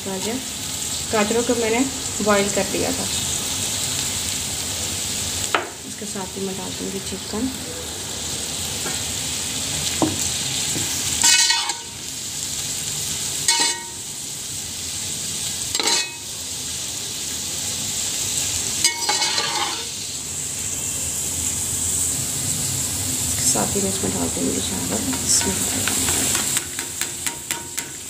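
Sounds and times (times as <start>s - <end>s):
food sizzling in hot oil: 0.0s - 28.0s
metal spoon screeching on pot: 11.2s - 12.0s, 13.5s - 14.0s, 15.7s - 16.3s, 18.8s - 19.9s.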